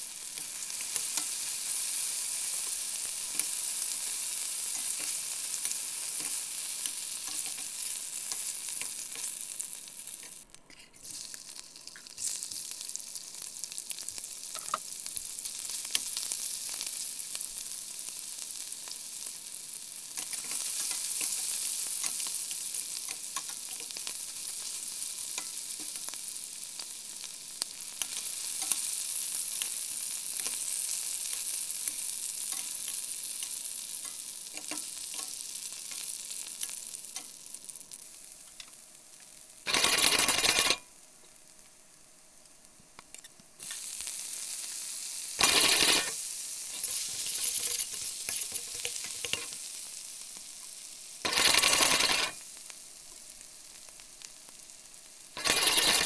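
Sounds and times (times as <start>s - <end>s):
garlic sizzling in oil: 0.0s - 56.0s
sausage sizzling in oil: 0.0s - 56.0s
spoon stirring against pan: 0.4s - 12.7s, 20.2s - 26.2s, 30.4s - 37.4s, 45.4s - 49.7s.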